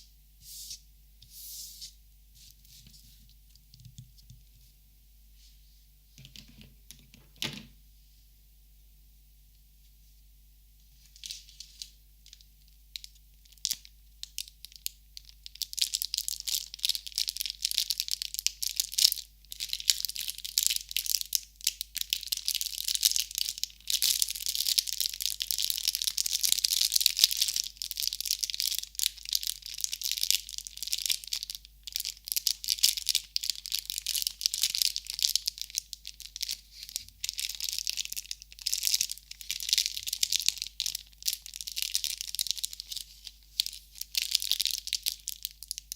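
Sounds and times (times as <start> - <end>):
material crinkling by hand: 11.0 - 45.9.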